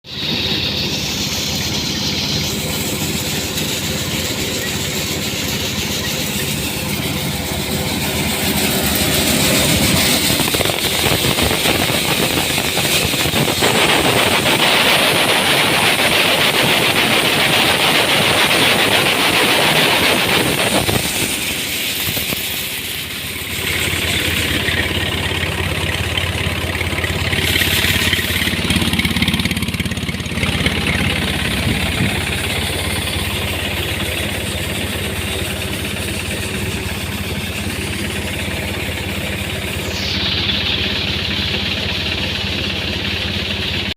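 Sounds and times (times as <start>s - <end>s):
rushing noise: 0.0s - 43.9s
tractor engine driving a thresher: 0.0s - 43.9s.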